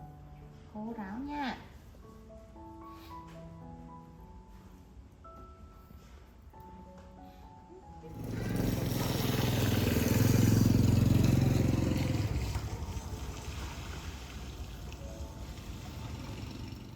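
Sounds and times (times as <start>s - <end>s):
vehicle engine passing by: 8.0s - 16.9s.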